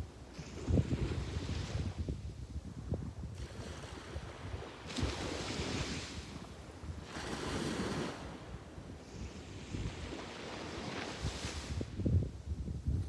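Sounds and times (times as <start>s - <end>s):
wind buffeting microphone: 0.4s - 13.0s
sea waves breaking on beach: 3.4s - 11.9s.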